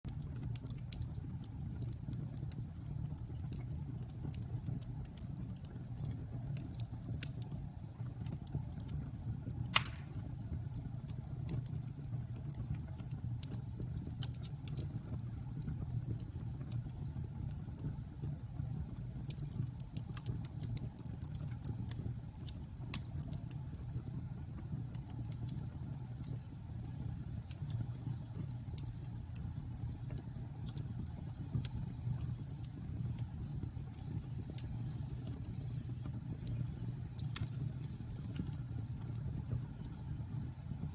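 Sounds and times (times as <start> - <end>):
bonfire rumble: 0.1 - 40.9
wood crackles: 9.5 - 10.4, 28.7 - 40.5
loud pop: 9.8 - 10.2.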